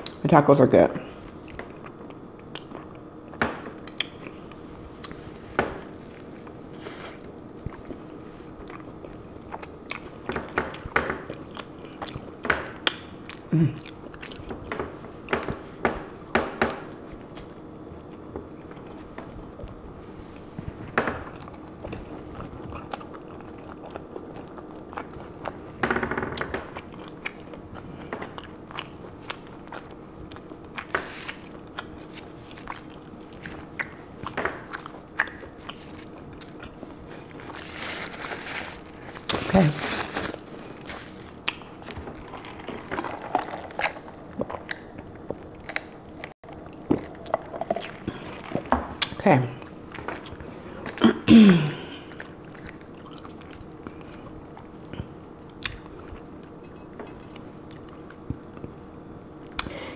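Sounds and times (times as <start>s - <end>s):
person biting and chewing: 1.3s - 14.7s, 21.2s - 51.1s.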